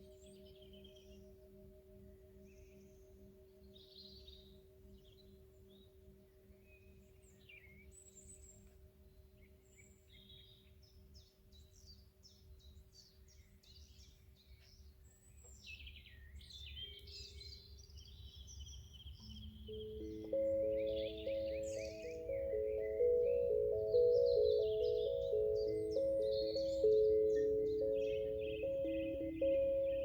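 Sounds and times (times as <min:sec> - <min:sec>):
birds chirping and trilling: 0:16.7 - 0:30.0
singing bowl ringing: 0:19.4 - 0:30.0.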